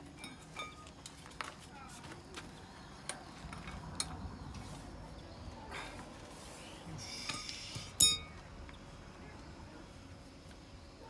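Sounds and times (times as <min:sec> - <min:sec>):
ringing metallic clink: 0:00.0 - 0:01.2, 0:07.3 - 0:08.4.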